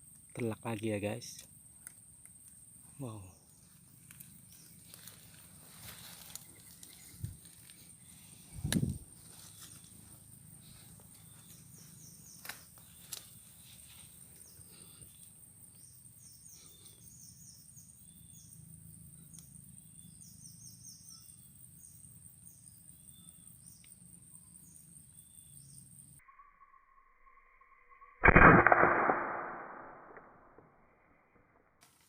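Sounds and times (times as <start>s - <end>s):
high insect drone: 0.0s - 28.1s
small birds chirping: 0.3s - 26.8s
sharp clicks: 28.2s - 30.4s.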